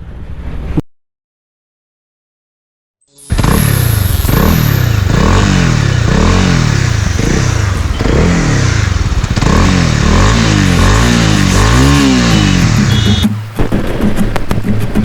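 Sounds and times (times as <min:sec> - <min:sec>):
road noise: 0:03.2 - 0:15.0
motorcycle engine running: 0:03.3 - 0:14.4.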